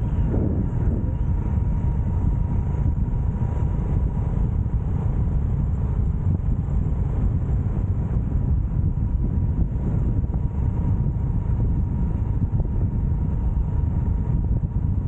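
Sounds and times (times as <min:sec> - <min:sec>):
road noise: 0:00.0 - 0:09.8
motorcycle engine rumble: 0:00.0 - 0:11.0
faint steady whine: 0:00.0 - 0:15.0
wind buffeting microphone: 0:00.0 - 0:15.0.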